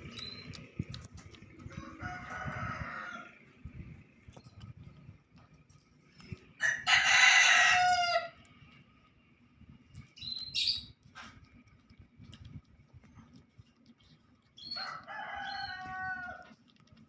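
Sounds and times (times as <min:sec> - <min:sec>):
rooster crowing: 0:01.7 - 0:03.4, 0:06.6 - 0:08.4, 0:14.8 - 0:16.6.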